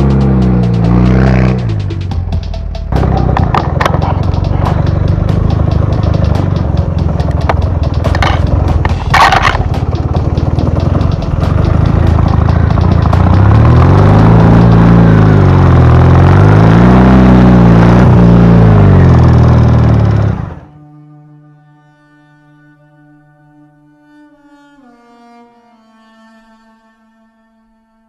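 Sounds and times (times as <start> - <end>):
motorcycle engine revving: 0.0 - 20.8
short scraping sounds: 7.5 - 10.1.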